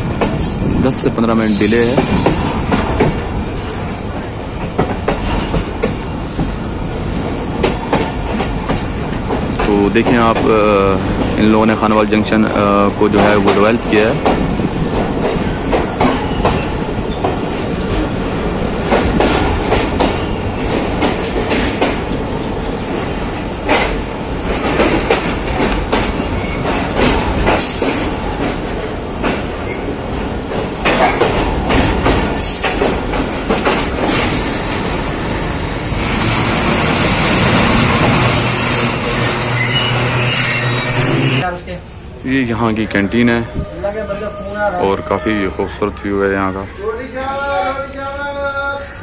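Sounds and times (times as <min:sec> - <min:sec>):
train wheels clattering over rail joints: 0:00.0 - 0:35.1
high wheel squeals: 0:27.6 - 0:28.9, 0:34.0 - 0:41.5.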